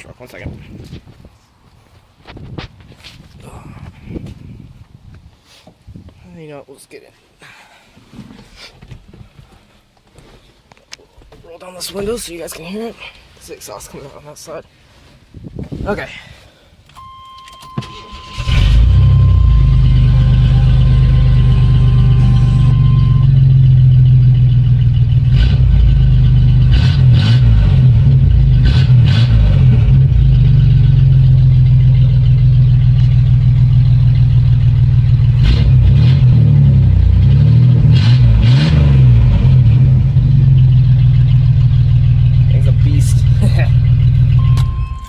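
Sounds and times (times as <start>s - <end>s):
truck engine idling loudly: 19.3s - 25.2s.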